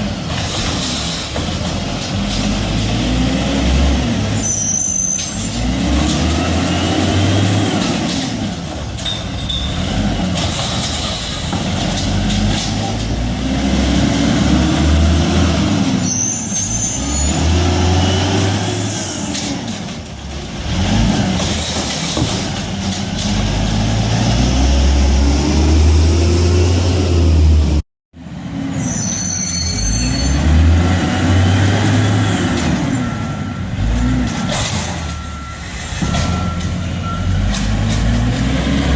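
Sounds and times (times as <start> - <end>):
garbage truck engine revving: 0.0 - 4.6, 5.4 - 28.5, 29.8 - 38.9
reversing beeper: 32.8 - 37.6.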